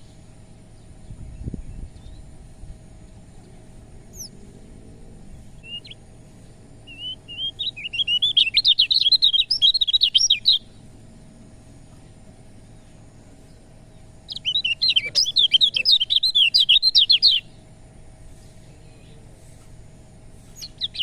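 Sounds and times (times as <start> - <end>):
bird chirping: 3.0 - 11.3, 11.9 - 17.7, 20.2 - 21.0.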